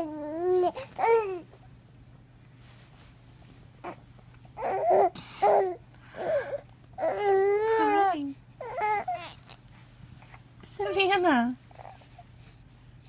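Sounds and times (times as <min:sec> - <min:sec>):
baby babbling: 0:04.6 - 0:09.6.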